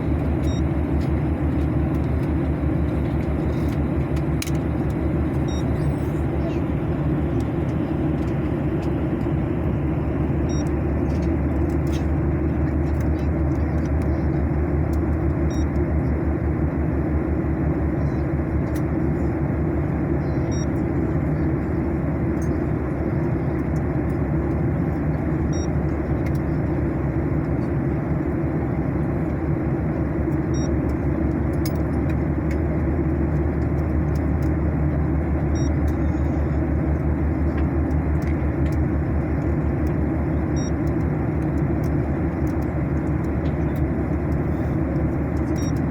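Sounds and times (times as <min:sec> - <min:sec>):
airliner cabin roar: 0:00.0 - 0:45.9.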